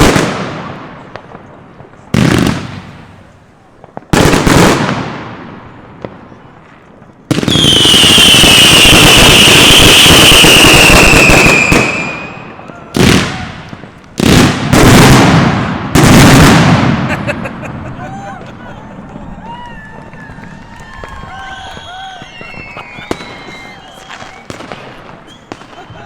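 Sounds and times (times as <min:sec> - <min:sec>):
firework bangs: 0:00.0 - 0:26.0
firework hissing and whistling: 0:06.9 - 0:14.0, 0:19.3 - 0:26.0.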